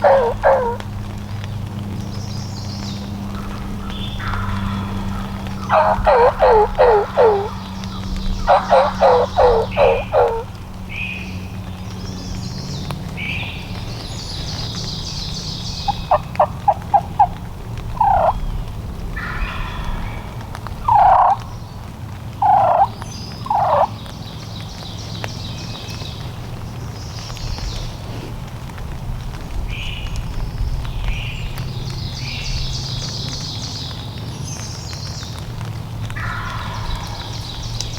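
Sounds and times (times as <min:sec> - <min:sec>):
wild turkey yelping: 0:00.0 - 0:00.8, 0:03.3 - 0:11.0, 0:13.6 - 0:18.4, 0:19.2 - 0:21.6, 0:22.4 - 0:24.1, 0:36.2 - 0:37.9
low steady rumble: 0:00.0 - 0:33.4
songbirds trilling: 0:00.0 - 0:37.9.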